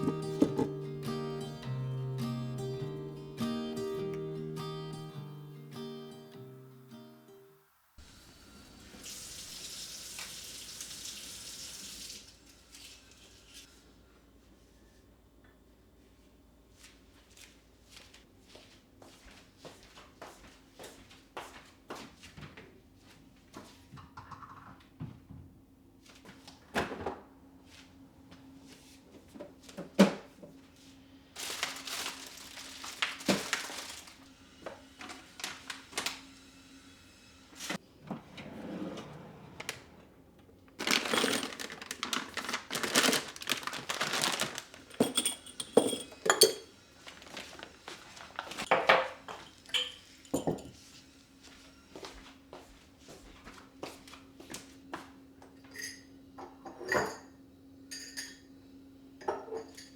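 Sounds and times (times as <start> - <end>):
kitchen items knocking and clinking: 0.0 - 0.8, 24.0 - 24.8, 40.8 - 46.7, 48.6 - 50.8
rustling or pouring: 31.4 - 34.2, 40.8 - 46.0, 47.0 - 48.7.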